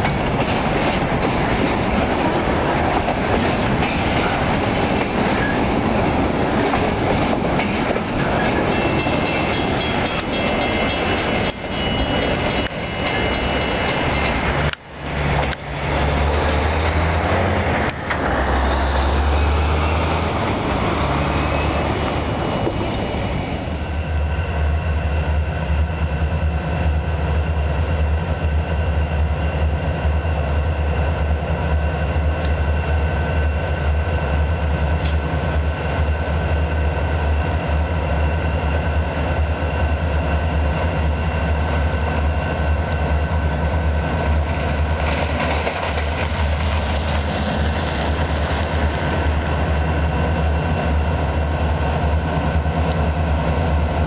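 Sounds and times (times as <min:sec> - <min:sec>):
freight cars rolling on rails: 0:00.0 - 0:26.2, 0:33.8 - 0:54.0
diesel locomotive engine rumbling: 0:00.0 - 0:54.0
locomotive whine: 0:00.0 - 0:54.0.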